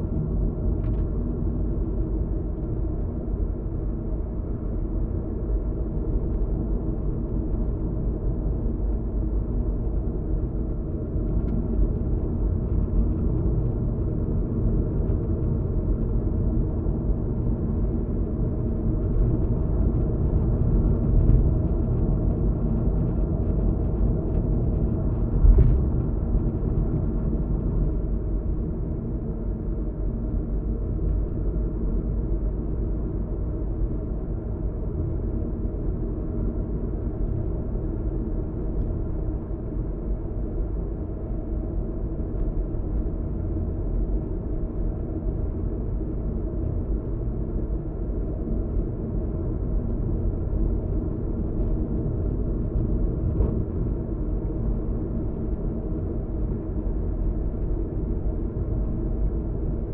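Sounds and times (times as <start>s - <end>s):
faint engine drone: 0.0s - 59.9s
short thump: 25.4s - 26.0s.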